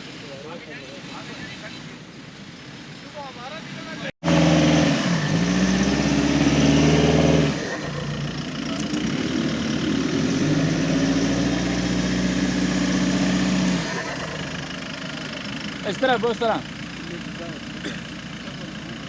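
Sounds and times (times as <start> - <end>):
jeep engine revving hard: 4.2 - 16.6.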